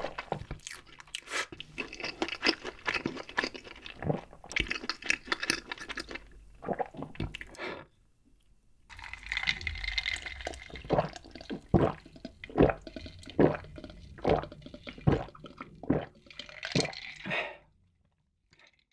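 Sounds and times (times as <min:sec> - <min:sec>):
chewing: 0:00.0 - 0:07.6
wet mouth sounds: 0:00.1 - 0:07.9, 0:09.0 - 0:17.5.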